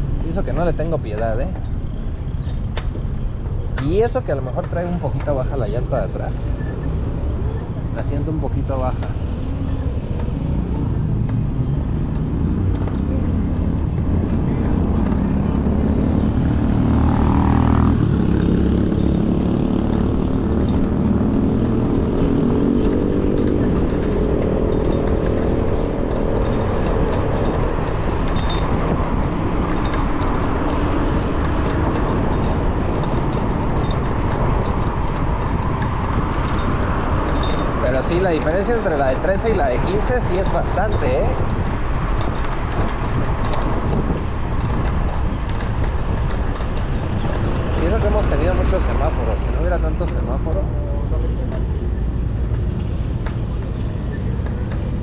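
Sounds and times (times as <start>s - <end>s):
road and traffic noise: 0.0s - 55.0s
vehicle engine accelerating: 9.1s - 55.0s
wind on microphone: 39.8s - 50.0s.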